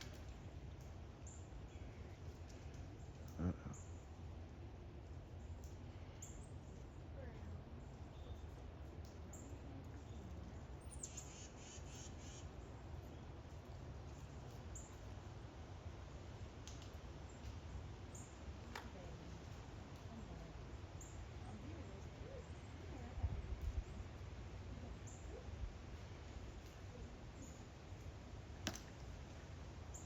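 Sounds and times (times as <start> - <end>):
bird chirps: 9.3 - 12.5.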